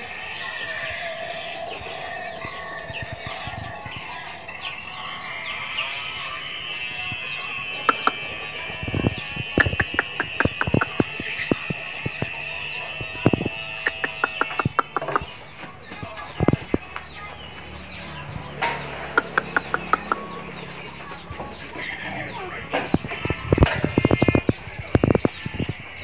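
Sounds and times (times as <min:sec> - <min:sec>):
birds chirping: 0:00.0 - 0:26.0
sharp clicks: 0:07.9 - 0:08.2, 0:09.6 - 0:11.6, 0:13.3 - 0:15.2, 0:19.2 - 0:20.2.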